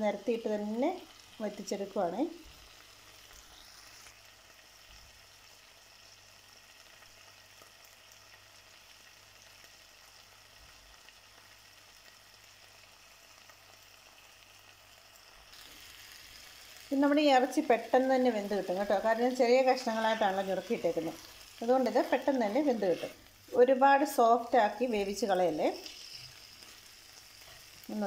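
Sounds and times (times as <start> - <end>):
pork sizzling in a clay pot: 0.0 - 28.0
liquid boiling: 0.7 - 28.0.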